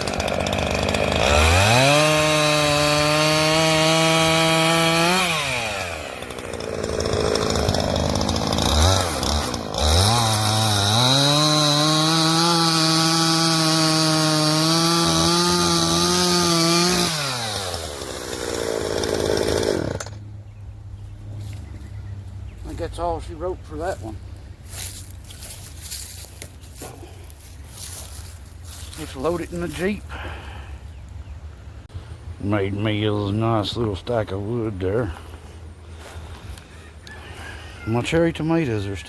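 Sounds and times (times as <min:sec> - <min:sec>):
chainsaw revving and cutting: 0:00.0 - 0:20.3.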